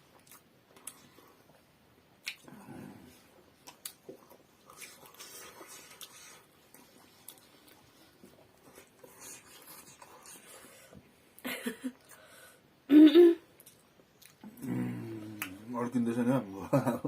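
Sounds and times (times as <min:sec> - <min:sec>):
chewing food: 0:00.0 - 0:01.6, 0:03.6 - 0:10.8, 0:13.6 - 0:14.7.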